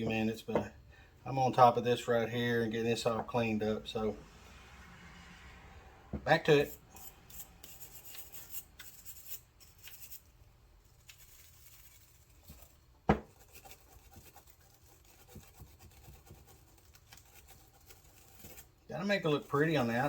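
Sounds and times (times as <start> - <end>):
scraping and rubbing on metal: 6.4 - 20.0.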